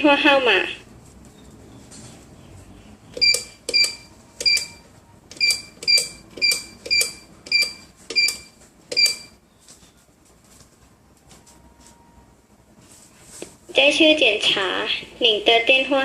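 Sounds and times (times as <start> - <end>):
keypad beeps with clicks: 3.2 - 9.4.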